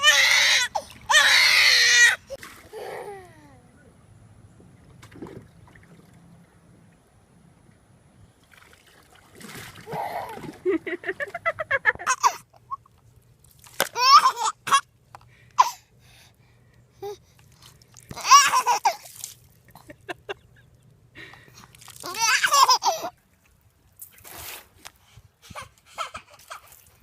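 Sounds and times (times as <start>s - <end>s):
person laughing: 10.0s - 12.4s, 19.7s - 20.7s.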